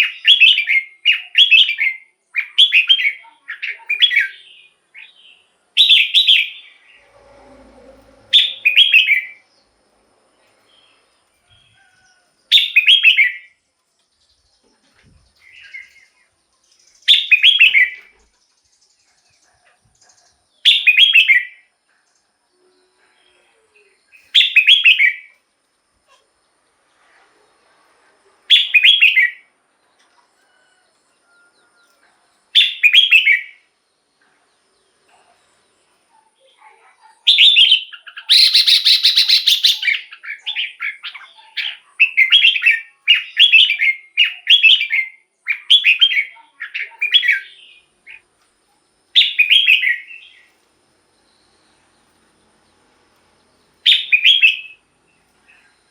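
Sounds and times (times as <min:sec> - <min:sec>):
bulbul singing: 0:37.3 - 0:48.2, 0:49.1 - 0:50.5, 0:53.7 - 0:55.9.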